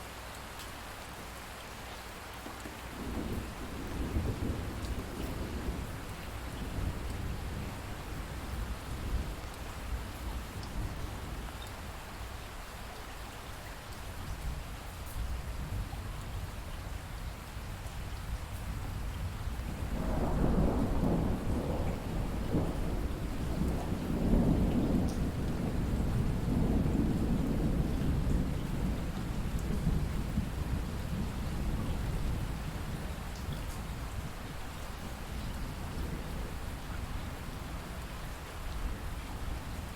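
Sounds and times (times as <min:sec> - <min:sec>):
steady rain: 0:00.0 - 0:39.9
low thunder rolling: 0:03.0 - 0:06.0, 0:19.7 - 0:33.0.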